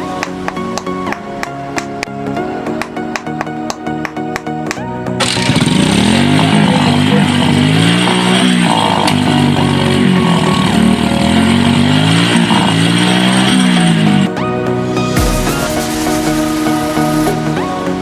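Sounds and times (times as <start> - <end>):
small engine revving: 5.2 - 14.3.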